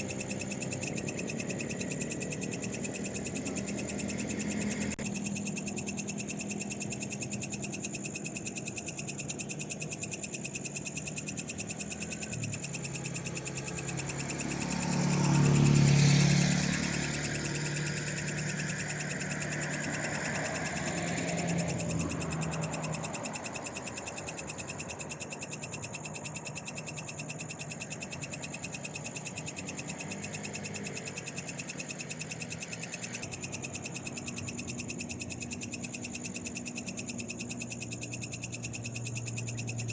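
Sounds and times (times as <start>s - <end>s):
frogs trilling: 0.0s - 39.9s
insects calling: 0.0s - 39.9s
vehicle passing: 12.8s - 23.4s.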